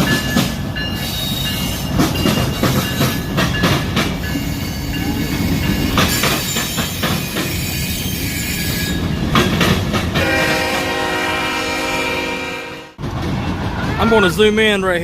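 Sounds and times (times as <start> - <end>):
wheels clacking over rail joints: 0.0 - 10.7
train cars rumbling: 0.0 - 15.0.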